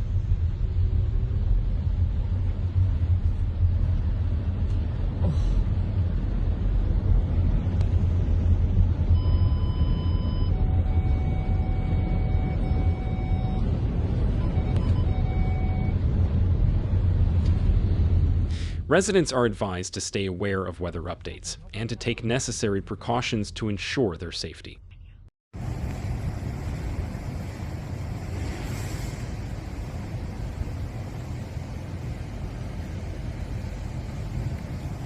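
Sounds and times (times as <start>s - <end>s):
loud low rumble: 0.0s - 19.6s.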